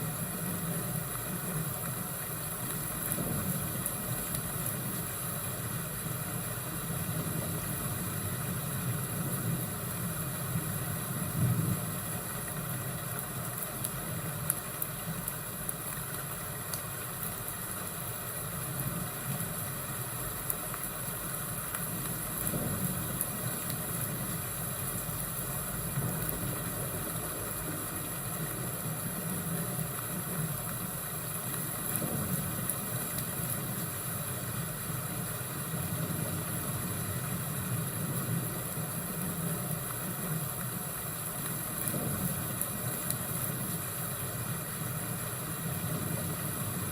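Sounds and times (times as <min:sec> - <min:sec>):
fire crackles: 0:00.0 - 0:46.9
rain-like hiss: 0:00.0 - 0:46.9
low rolling thunder: 0:22.3 - 0:24.4, 0:31.9 - 0:32.7, 0:41.8 - 0:42.6.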